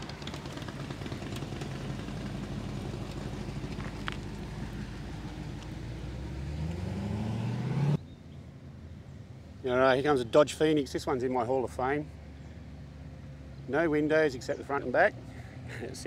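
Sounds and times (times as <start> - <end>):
car engine driving by: 0.0 - 8.0.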